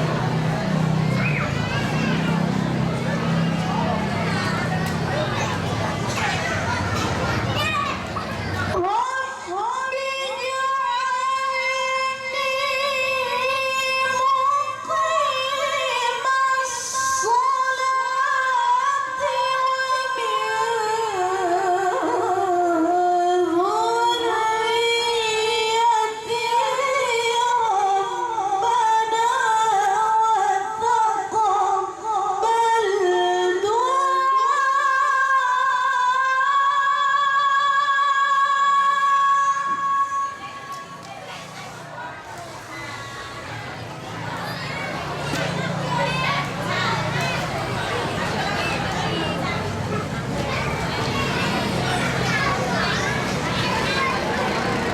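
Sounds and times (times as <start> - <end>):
woman chanting recitation: 8.7 - 44.4.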